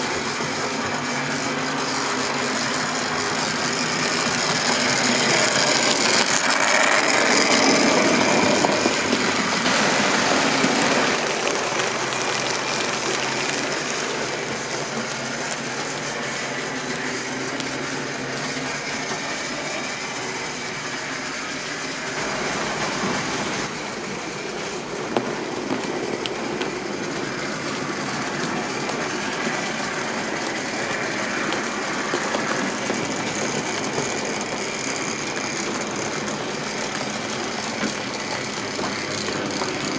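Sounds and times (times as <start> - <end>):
model train running on track: 0.0 - 39.9.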